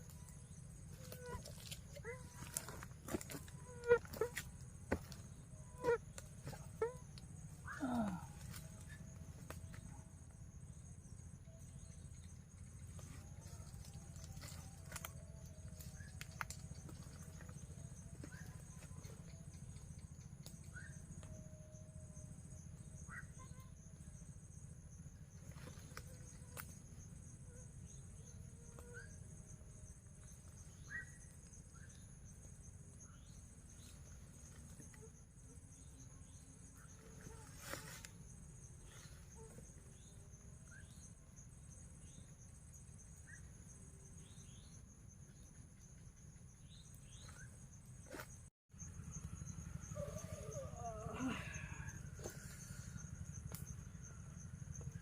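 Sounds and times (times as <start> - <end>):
high-pitched insect drone: 0.0 - 9.9
pulsing insect call: 0.0 - 55.0.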